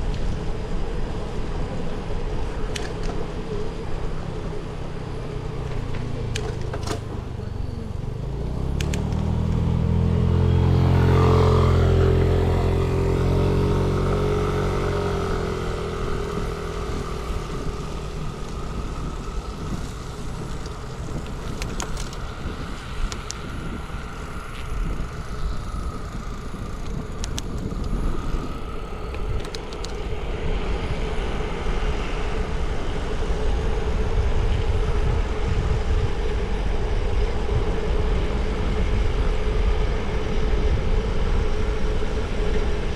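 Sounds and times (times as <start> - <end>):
traffic hum: 0.0 - 42.9
low rumble: 3.8 - 42.9
vehicle passing by: 4.1 - 42.9
light clicks: 8.7 - 9.6.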